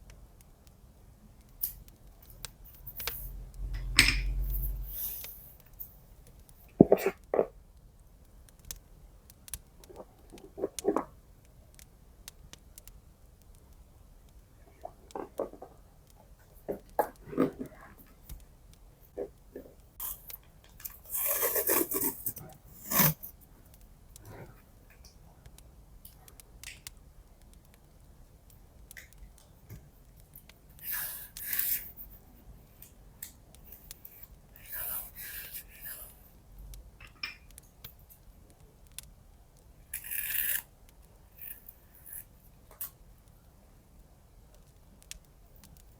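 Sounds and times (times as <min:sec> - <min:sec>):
fireplace crackling: 0:00.0 - 0:45.9
soft ticks of tape: 0:00.0 - 0:45.9
paper and tape rustling: 0:20.8 - 0:23.4.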